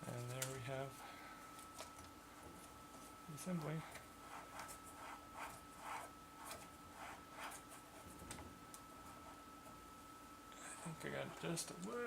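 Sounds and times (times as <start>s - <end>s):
low electrical hum: 0.0s - 12.0s
faint rubbing strokes: 3.8s - 8.2s, 8.9s - 9.5s.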